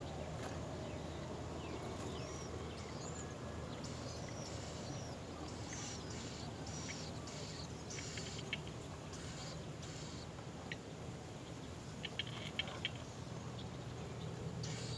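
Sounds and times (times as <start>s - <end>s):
small birds chirping: 11.6s - 14.9s.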